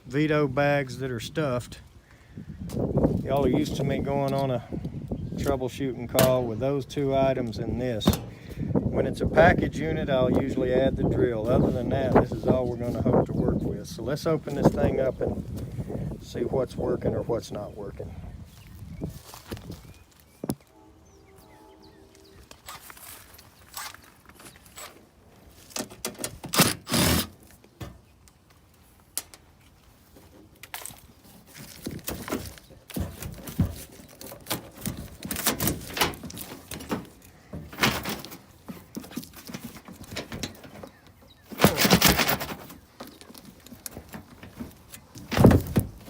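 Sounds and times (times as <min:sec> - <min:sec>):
sheet-metal panels knocking and rattling: 0:32.1 - 0:42.8.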